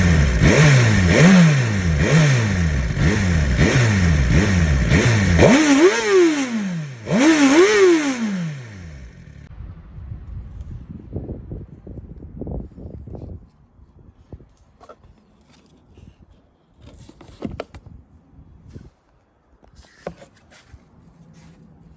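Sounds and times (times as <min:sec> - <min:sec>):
motorcycle engine revving: 0:00.0 - 0:09.5.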